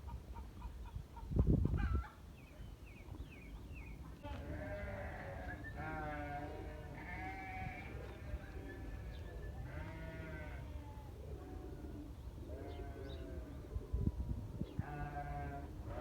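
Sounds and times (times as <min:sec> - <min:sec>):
sheep bleating: 0:04.3 - 0:08.3, 0:09.6 - 0:10.9, 0:14.8 - 0:16.0.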